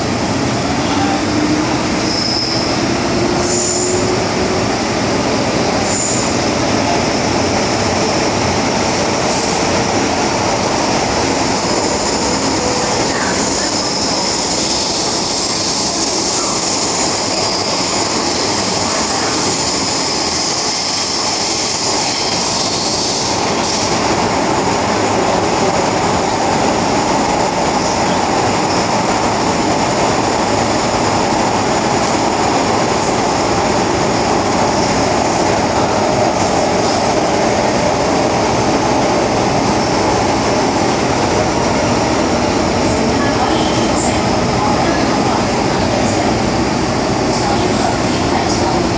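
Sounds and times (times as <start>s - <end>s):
train wheels rumbling on rail: 0.0s - 48.9s
wheel squeal: 2.0s - 2.8s.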